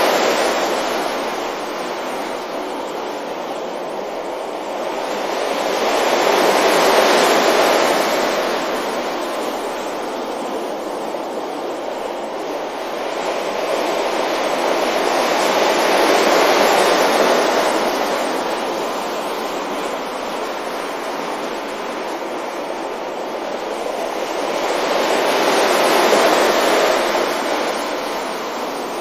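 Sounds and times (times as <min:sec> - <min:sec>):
sea waves washing onto beach: 0:00.0 - 0:29.0.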